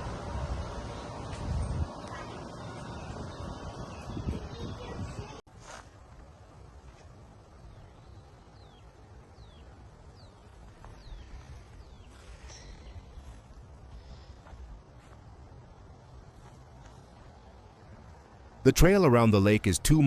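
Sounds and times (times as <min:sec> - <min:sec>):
bird chirping: 0:07.6 - 0:13.3.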